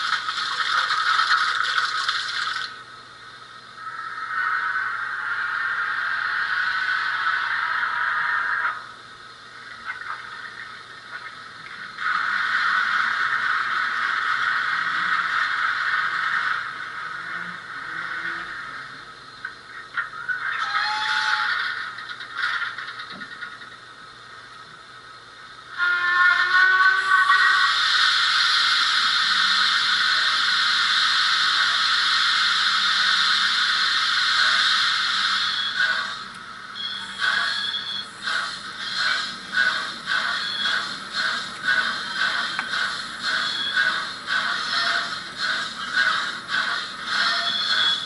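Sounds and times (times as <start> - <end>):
steam hiss from small speaker: 25.7 - 36.3.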